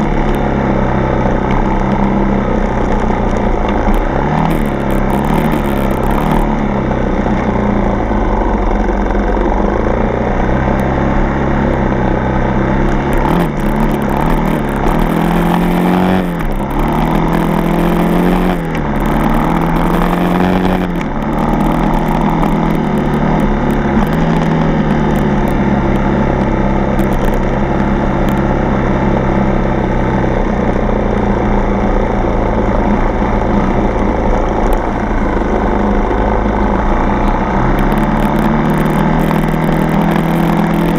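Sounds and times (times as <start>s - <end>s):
dirt bike engine revving: 0.0s - 7.1s, 12.3s - 26.4s, 33.3s - 40.9s.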